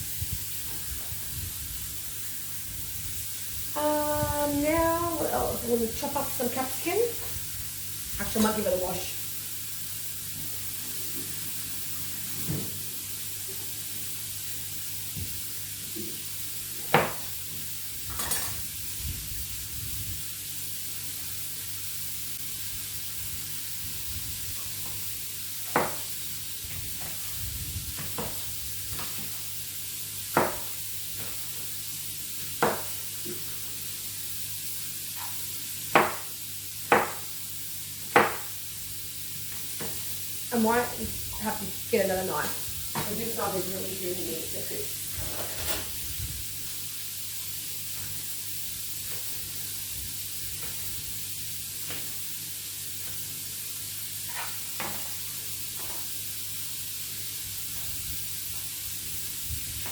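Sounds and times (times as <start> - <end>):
meat sizzling in a frying pan: 0.0 - 59.9
sharp knock: 36.0 - 36.3, 36.9 - 37.3, 38.2 - 38.5.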